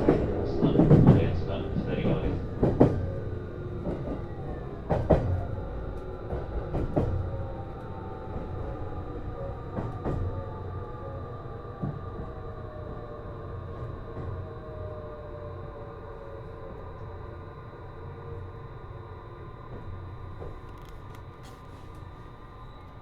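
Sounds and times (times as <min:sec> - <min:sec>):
train motor whine falling: 0:19.7 - 0:23.0.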